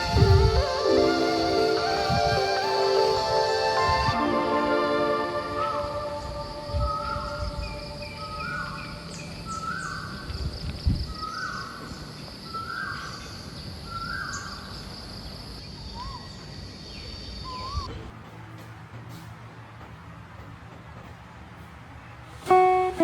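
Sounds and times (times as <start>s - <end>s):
steady high-pitched tone: 0.0s - 9.0s.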